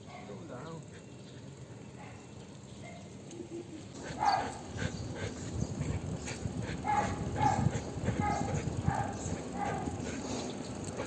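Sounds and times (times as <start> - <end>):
low rumble of movement: 4.0 - 11.0.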